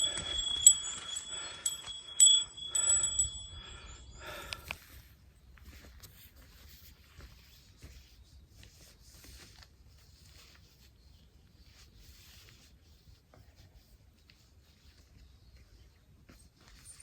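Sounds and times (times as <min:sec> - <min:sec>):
low wind rumble: 0:00.0 - 0:04.6
light ticks: 0:04.4 - 0:04.8.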